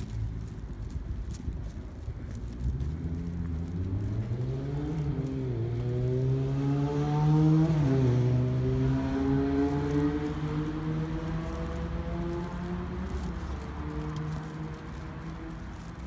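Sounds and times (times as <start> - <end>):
car engine accelerating: 2.4 - 16.0.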